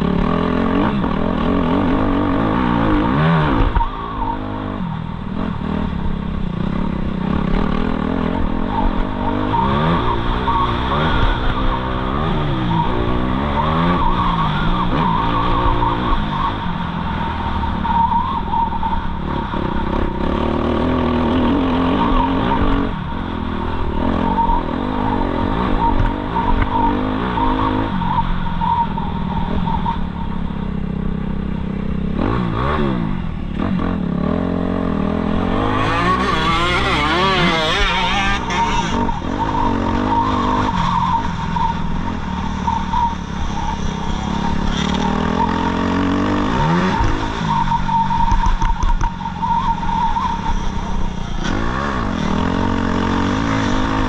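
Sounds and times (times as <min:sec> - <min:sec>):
motocross bike engine revving: 0:32.1 - 0:48.7, 0:50.4 - 0:54.0.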